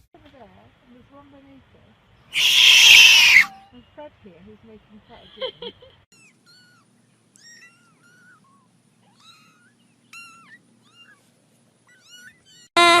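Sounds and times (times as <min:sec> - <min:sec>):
kitten mewing: 0:02.4 - 0:03.6.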